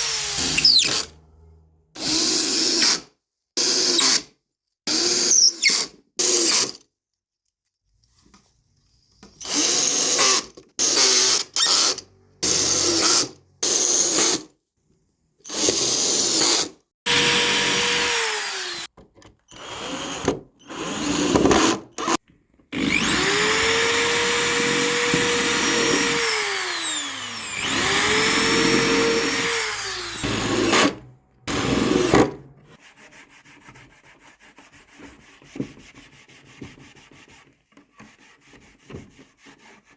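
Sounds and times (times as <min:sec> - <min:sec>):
electric drill motor whining: 0:00.0 - 0:01.2, 0:17.1 - 0:18.9, 0:22.8 - 0:32.4.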